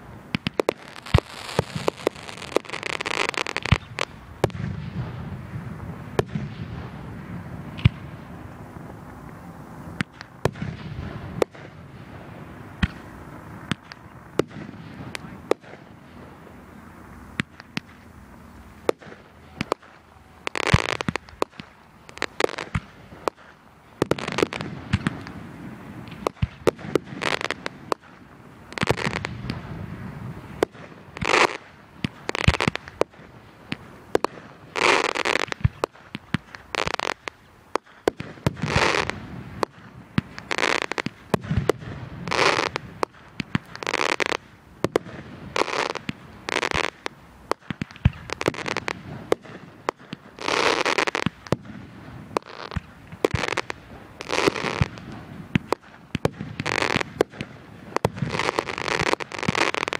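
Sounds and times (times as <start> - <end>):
crackling hiss: 0.0 - 59.9
fireworks bangs: 0.0 - 59.9.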